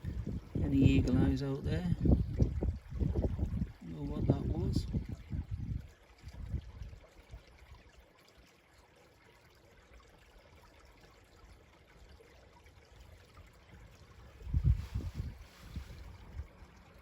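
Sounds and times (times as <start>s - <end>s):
faint stream running water: 0.0s - 17.0s.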